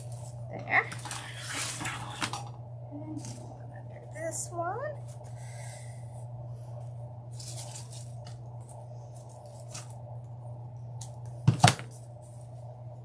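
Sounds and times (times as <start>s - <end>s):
steady low hum: 0.0s - 13.0s
artificial flowers rustling: 7.2s - 10.1s.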